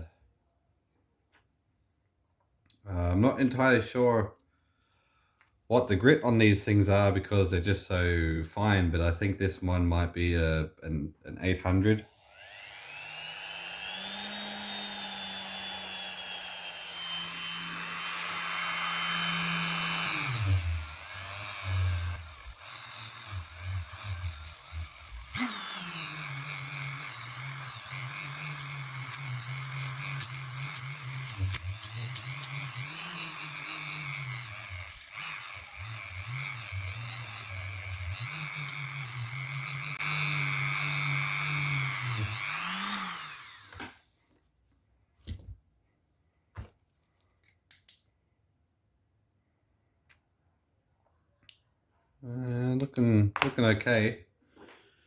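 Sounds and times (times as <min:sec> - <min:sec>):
rotary tool whining and winding down: 0:12.1 - 0:44.0.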